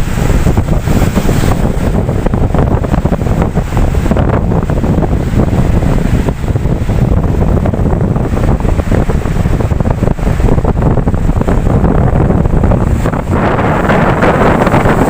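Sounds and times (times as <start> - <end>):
ocean surf: 0.0 - 15.0
wind buffeting microphone: 0.0 - 15.0.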